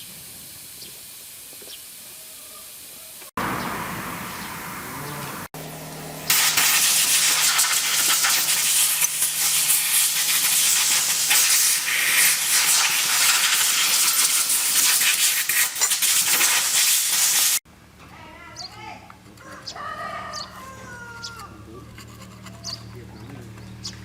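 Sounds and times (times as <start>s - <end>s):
pressurised jet hissing: 6.2s - 17.6s.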